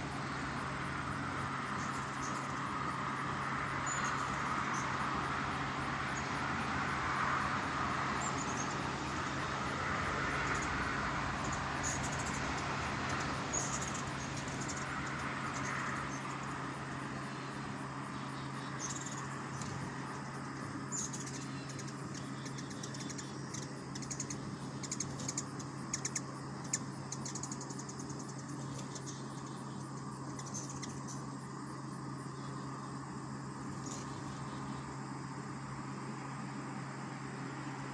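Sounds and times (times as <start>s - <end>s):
hummingbird chip notes: 0.0s - 5.3s, 7.6s - 31.3s
constant low hum: 0.0s - 37.9s.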